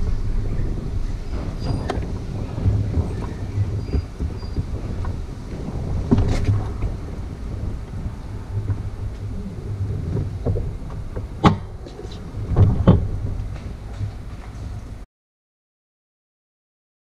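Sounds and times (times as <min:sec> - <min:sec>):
wind rumble on microphone: 0:00.0 - 0:15.0
sharp knocks: 0:10.2 - 0:14.1.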